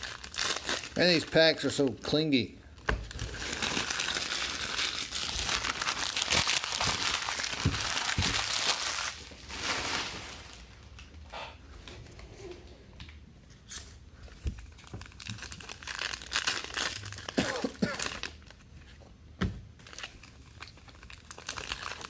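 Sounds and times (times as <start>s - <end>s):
wrappers tearing and crinkling: 0.0s - 1.9s, 3.0s - 11.0s, 14.6s - 18.6s, 19.8s - 22.0s.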